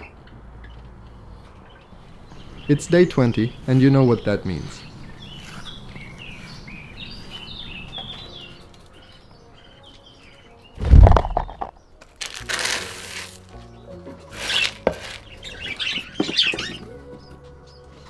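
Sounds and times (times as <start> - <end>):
budgies chirping: 1.7 - 10.3, 14.4 - 16.9
loud deep thump: 10.8 - 11.7
rustling: 10.8 - 13.6, 14.3 - 15.8.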